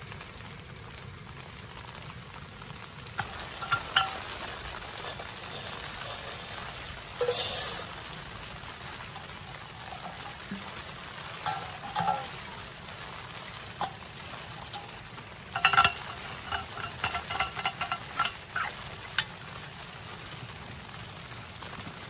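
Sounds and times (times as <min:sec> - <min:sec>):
steady hiss: 0:00.0 - 0:22.0
metal utensil scraping metal pot: 0:03.2 - 0:19.4.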